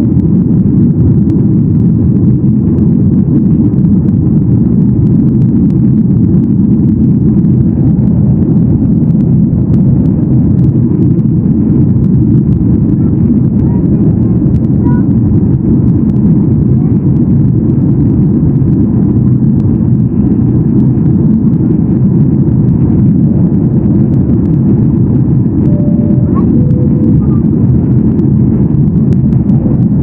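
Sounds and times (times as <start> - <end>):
airplane cabin engine rumble: 0.0 - 30.0.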